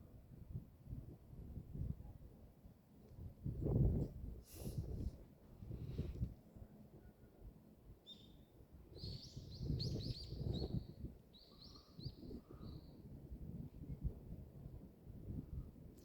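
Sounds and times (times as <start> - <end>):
songbird chirping: 8.0 - 12.9.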